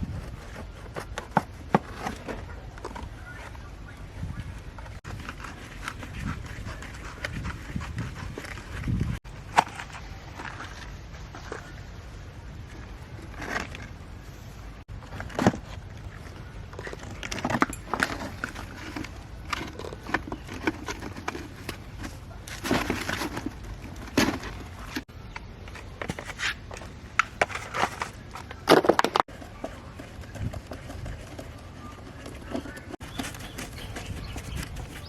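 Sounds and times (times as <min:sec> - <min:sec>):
clicks and scrapes of hand work: 0:04.8 - 0:11.8, 0:15.1 - 0:35.0.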